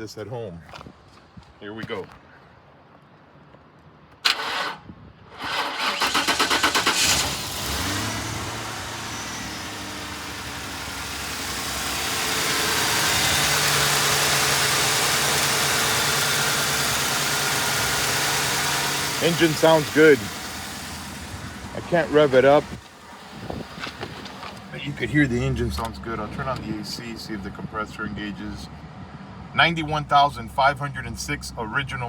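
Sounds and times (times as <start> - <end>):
starter cranking: 5.4 - 7.6
car engine running: 6.0 - 27.6.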